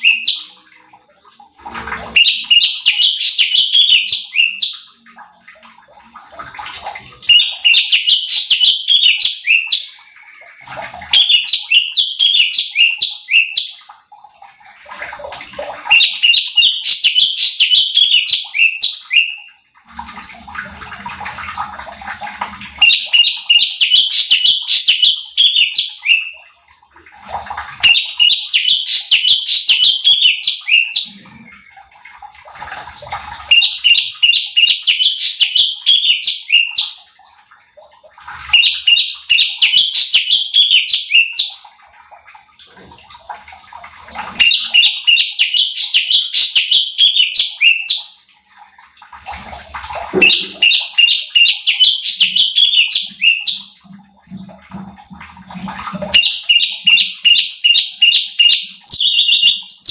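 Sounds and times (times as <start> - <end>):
bird singing bright phrases: 0.0 - 0.6, 2.2 - 4.8, 7.2 - 10.0, 11.2 - 13.8, 15.9 - 19.6, 22.8 - 26.4, 27.8 - 31.2, 33.5 - 36.9, 38.5 - 41.6, 44.4 - 48.0, 50.2 - 53.7, 56.1 - 59.9.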